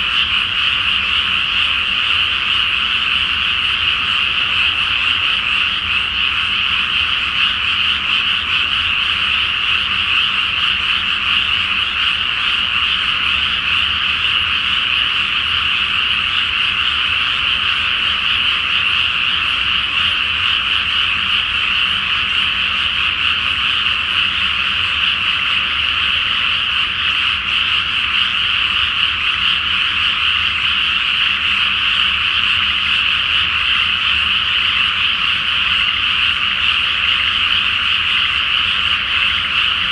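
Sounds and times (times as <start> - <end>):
chorus of frogs croaking: 0.0 - 39.9.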